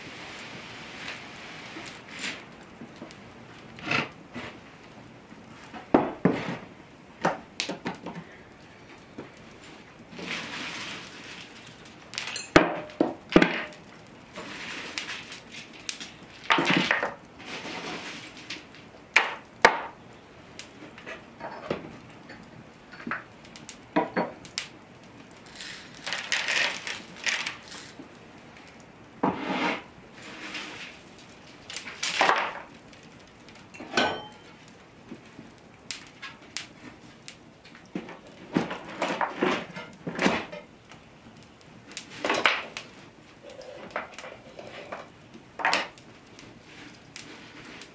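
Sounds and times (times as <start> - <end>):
utensils clinking against dishes: 12.2 - 12.6, 33.8 - 34.6.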